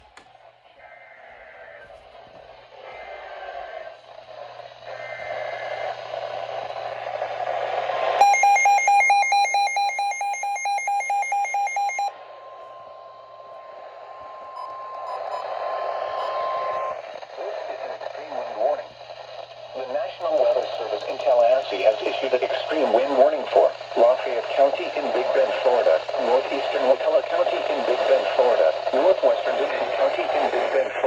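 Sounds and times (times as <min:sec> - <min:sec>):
steady single-pitch alert tone: 0:08.2 - 0:17.0
warbling electronic alarm: 0:08.2 - 0:17.0
faint data-like tones: 0:08.2 - 0:18.9, 0:19.8 - 0:31.0
radio signal hiss: 0:12.4 - 0:31.0.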